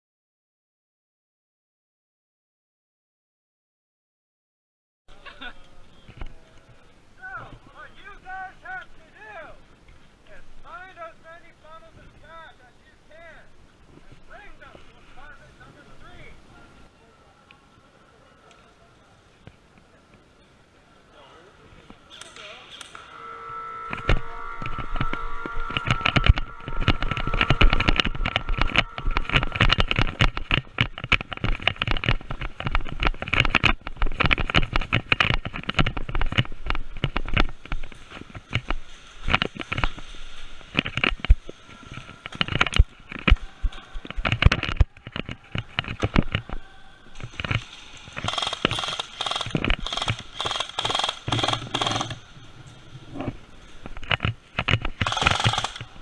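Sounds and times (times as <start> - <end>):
steady high tone: 23.0 - 29.8
sharp clicks: 47.3 - 52.2, 54.0 - 56.0
airsoft guns firing: 48.2 - 52.2, 55.0 - 56.0.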